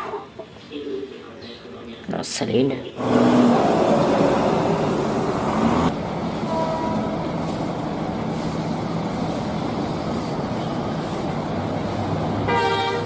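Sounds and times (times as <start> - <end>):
road traffic noise: 2.8 - 13.0
large vehicle engine running: 3.0 - 13.0.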